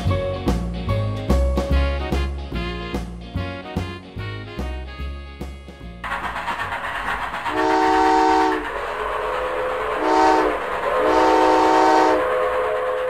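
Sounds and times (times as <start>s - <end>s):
moving train rumble: 0.0s - 13.0s
train whistle chord: 1.7s - 5.2s, 7.5s - 13.0s.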